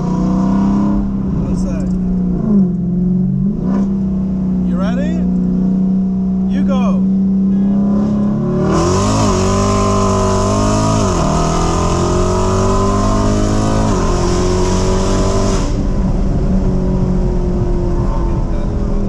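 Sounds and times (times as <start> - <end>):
car engine at full throttle: 0.0 - 19.0
rush of wind: 8.6 - 19.0.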